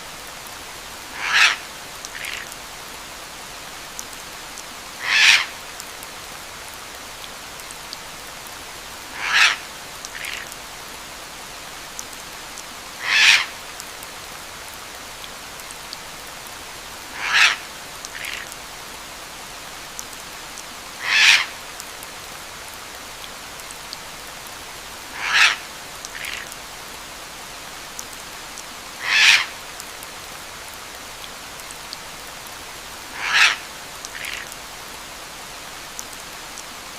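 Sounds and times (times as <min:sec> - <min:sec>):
steady rain: 0:00.0 - 0:36.9
bird calling: 0:01.2 - 0:01.6, 0:05.0 - 0:05.5, 0:09.2 - 0:09.6, 0:13.0 - 0:13.5, 0:17.2 - 0:17.6, 0:21.0 - 0:21.5, 0:25.2 - 0:25.6, 0:29.0 - 0:29.5, 0:33.1 - 0:33.6.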